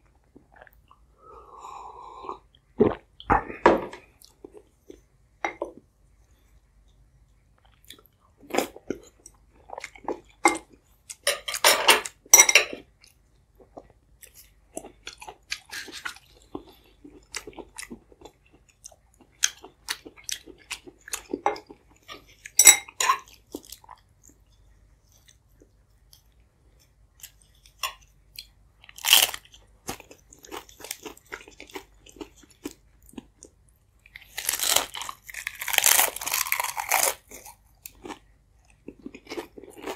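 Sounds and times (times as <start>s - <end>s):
close chewing and wet mouth sounds: 4.0s - 11.2s, 12.8s - 39.9s
crunchy bites: 34.2s - 38.2s.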